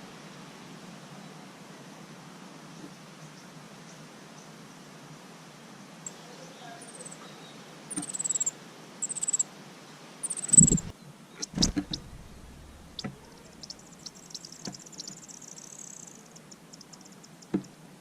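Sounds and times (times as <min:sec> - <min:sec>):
small bird chirping: 0:06.8 - 0:07.3, 0:07.9 - 0:09.4, 0:10.2 - 0:17.6
thin high bird trill: 0:08.0 - 0:09.4, 0:10.2 - 0:15.2
knocks with low thump: 0:11.6 - 0:13.2.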